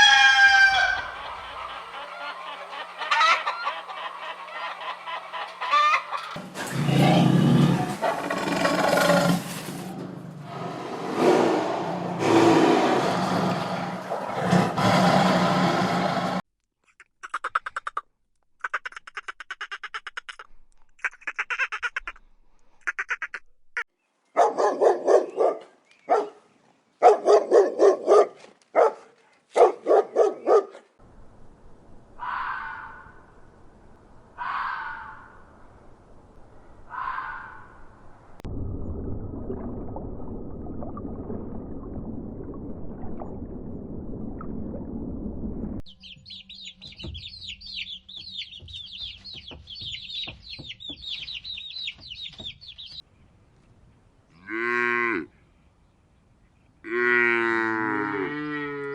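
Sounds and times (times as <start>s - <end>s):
poultry calls: 0.0s - 6.4s, 45.9s - 53.0s
chicks peeping: 45.9s - 53.0s.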